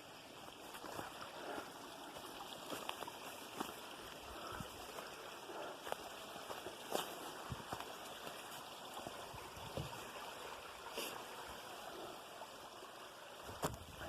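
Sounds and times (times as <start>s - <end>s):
stream running water: 0.0s - 14.0s.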